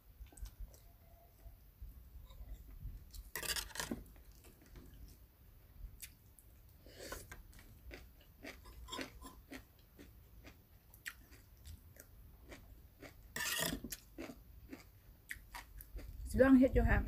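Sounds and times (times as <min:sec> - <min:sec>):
chewing crunchy food: 0:00.2 - 0:01.6, 0:06.0 - 0:16.3.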